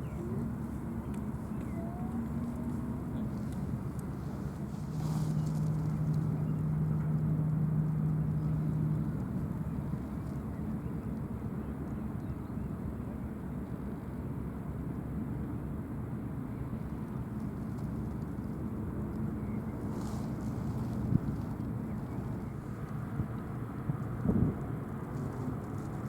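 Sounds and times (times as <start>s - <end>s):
ship engines rumbling: 0.0s - 14.6s
harbour traffic: 0.0s - 26.0s.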